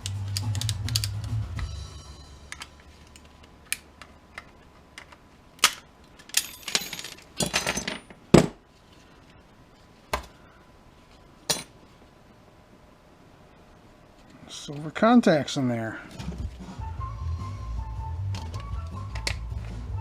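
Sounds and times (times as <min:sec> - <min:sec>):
metal parts clinking: 0:04.4 - 0:08.2.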